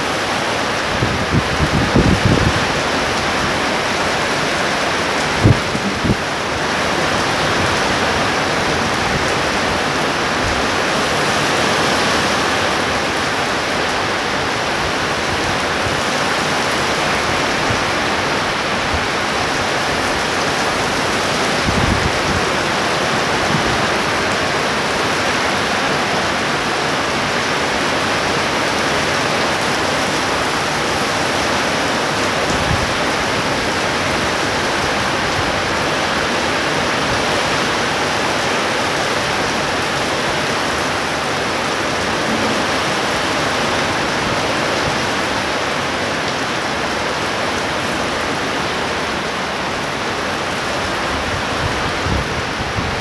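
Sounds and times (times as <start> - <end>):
heavy rain pouring: 0.0 - 53.0.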